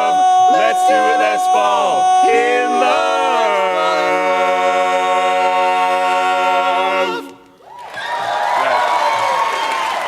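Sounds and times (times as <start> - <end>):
male quartet singing a cappella: 0.0 - 7.5.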